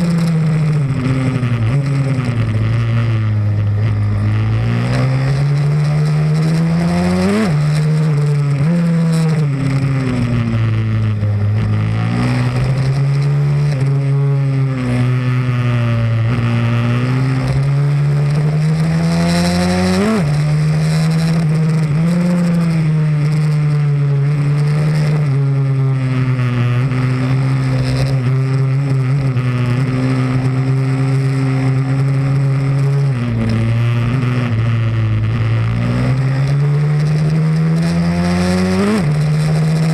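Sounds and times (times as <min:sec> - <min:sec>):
motorbike engine running hard: 0:00.0 - 0:39.9.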